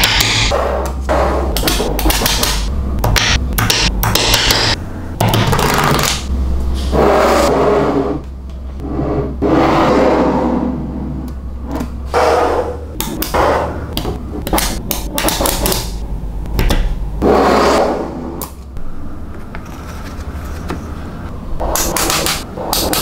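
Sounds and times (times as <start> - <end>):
low hum: 0.0 - 15.2, 15.8 - 23.0
balls snapping clicks: 14.0 - 16.9.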